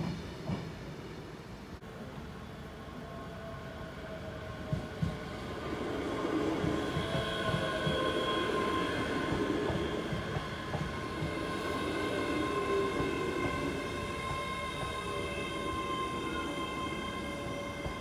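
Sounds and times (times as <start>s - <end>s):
train rumbling: 0.0s - 18.0s
steady high tones: 5.2s - 18.0s.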